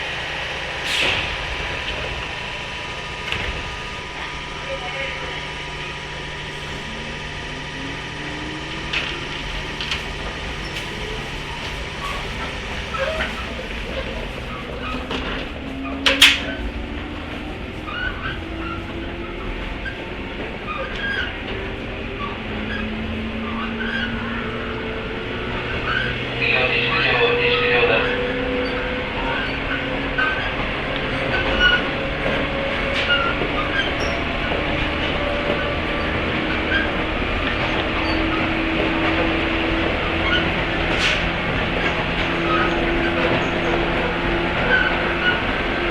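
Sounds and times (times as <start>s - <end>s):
electric train motor whine: 0.0s - 13.9s
train wheel and track rumble: 0.0s - 45.9s
high wheel squeals: 25.7s - 45.9s.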